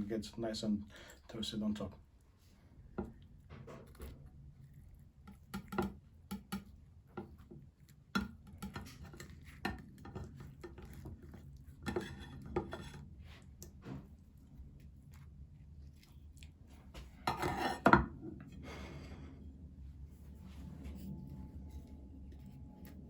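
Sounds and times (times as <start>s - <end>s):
dishes and utensils clinking: 17.3s - 18.2s.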